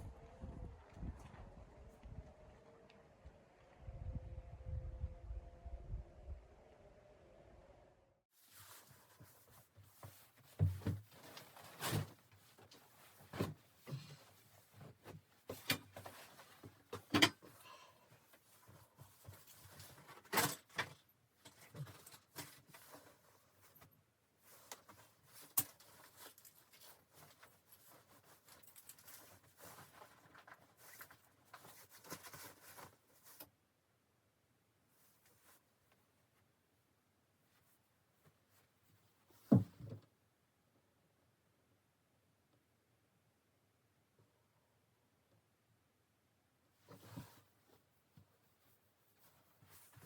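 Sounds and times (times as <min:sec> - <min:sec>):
rustling: 0:08.4 - 0:33.6, 0:34.9 - 0:36.7, 0:46.8 - 0:50.0.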